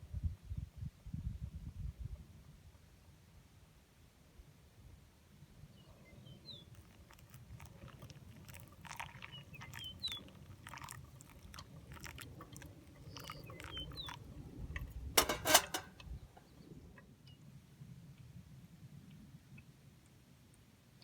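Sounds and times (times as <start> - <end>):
small birds chirping: 5.6 - 14.4.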